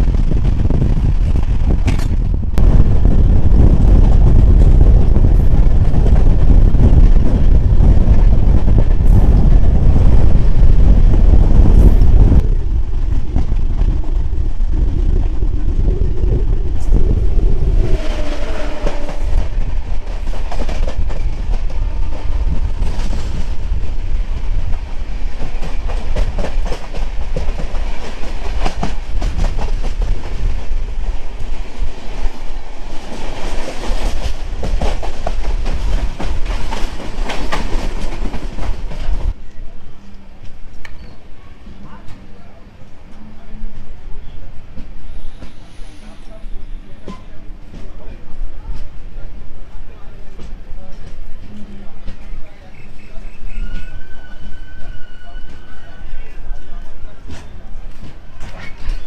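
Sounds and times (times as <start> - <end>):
train coach rumbling on rails: 0.0 - 59.0.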